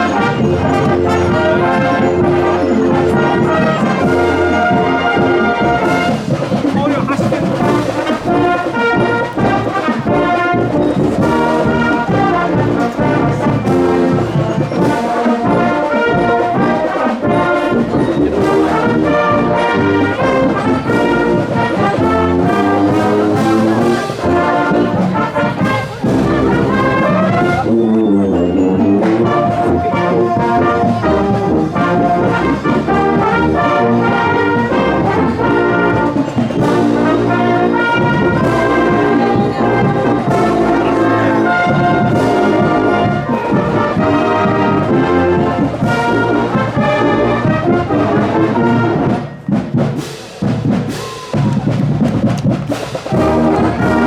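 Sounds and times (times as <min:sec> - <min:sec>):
marching band brass: 0:00.0 - 0:54.0
steady drum beat: 0:00.0 - 0:54.0.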